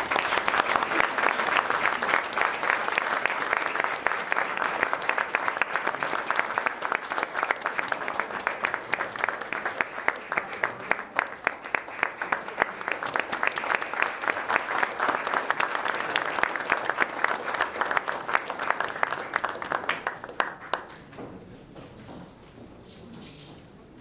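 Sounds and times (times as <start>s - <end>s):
audience applauding: 0.0s - 21.2s.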